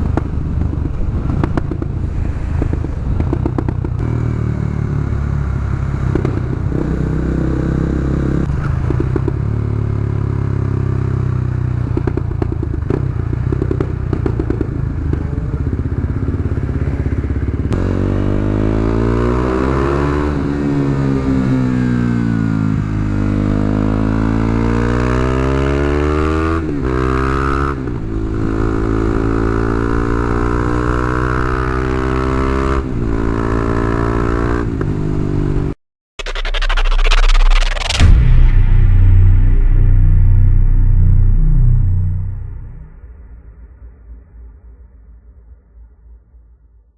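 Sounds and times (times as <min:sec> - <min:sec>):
loud motorcycle engine revving: 0:00.0 - 0:35.8.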